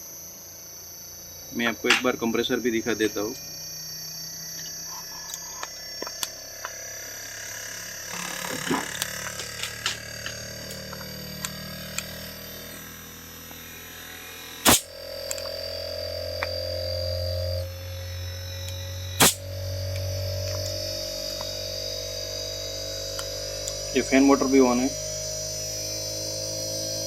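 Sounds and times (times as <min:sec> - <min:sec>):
loud sharp click: 0:14.6 - 0:15.5, 0:19.2 - 0:19.4.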